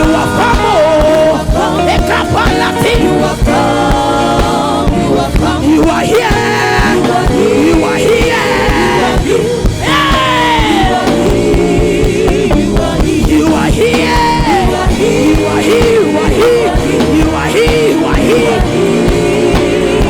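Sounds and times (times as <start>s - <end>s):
gospel band playing: 0.0s - 20.0s
person singing: 0.0s - 20.0s.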